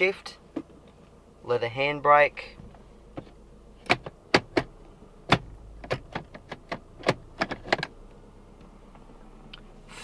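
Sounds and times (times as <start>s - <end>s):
gear selector and handbrake clicks: 3.2s - 4.7s, 5.3s - 8.0s.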